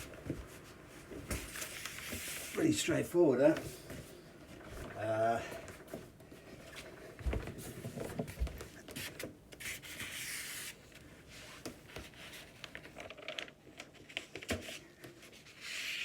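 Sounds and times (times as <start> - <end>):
paper rustling and rubbing: 0.0 - 2.9, 8.8 - 16.0.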